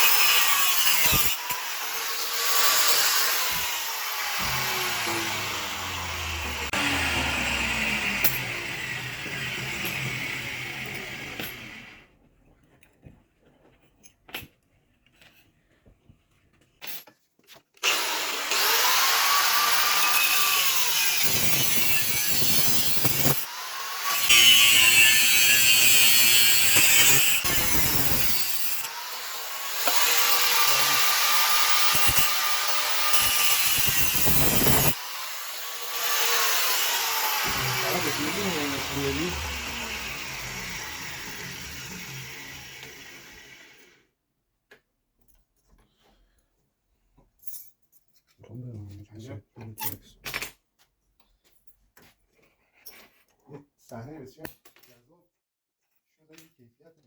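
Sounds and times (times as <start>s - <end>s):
power tool motor: 0.0s - 12.0s, 17.8s - 44.0s.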